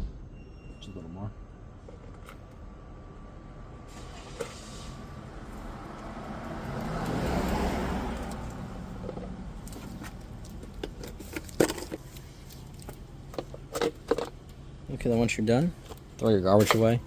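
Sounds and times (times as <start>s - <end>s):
vehicle passing: 2.9s - 11.0s.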